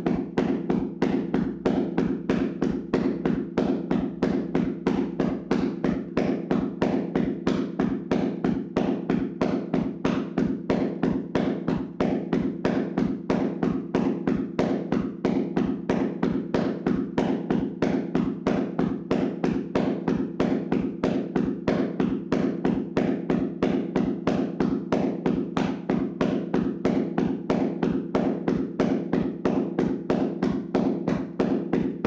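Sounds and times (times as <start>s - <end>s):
hands slapping on body: 0.0s - 32.0s.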